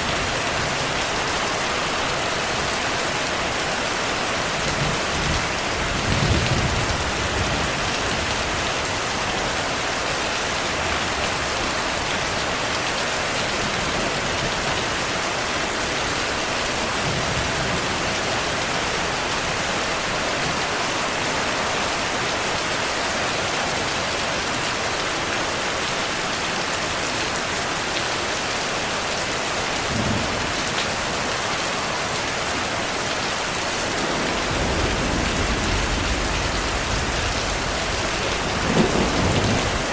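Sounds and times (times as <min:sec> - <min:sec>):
steady rainfall: 0:00.0 - 0:39.9
low thunder rumbles: 0:04.8 - 0:09.1, 0:33.7 - 0:39.9.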